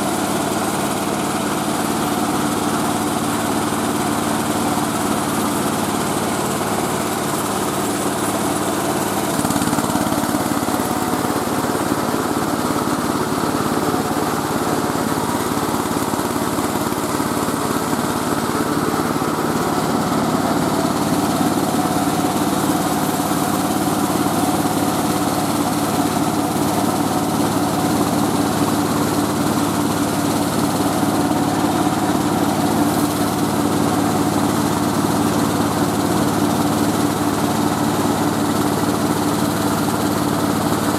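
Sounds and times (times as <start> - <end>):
rice milling machine droning: 0.0 - 40.9.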